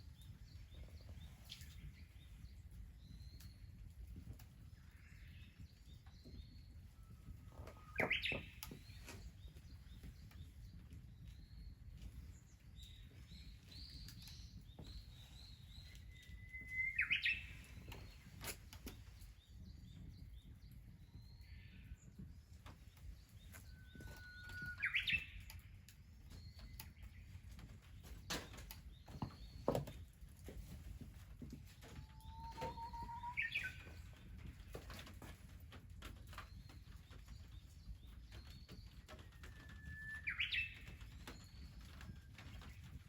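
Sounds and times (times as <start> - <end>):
soft bird chirps: 0.1 - 30.2, 31.9 - 35.2, 36.3 - 43.0
songbird whistling song: 6.2 - 10.3, 12.8 - 18.6, 23.1 - 27.3, 31.9 - 34.2, 38.0 - 42.3.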